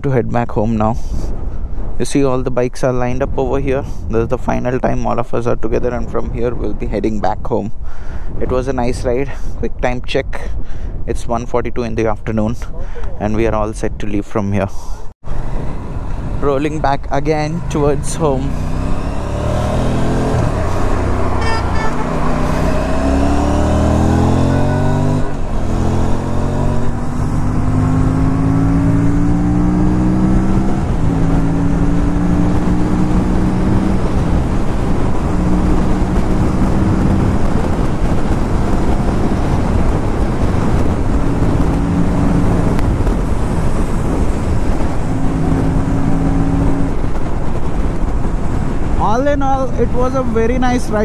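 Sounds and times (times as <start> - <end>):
wind and road noise: 0.0 - 51.0
motorcycle engine accelerating: 17.4 - 51.0.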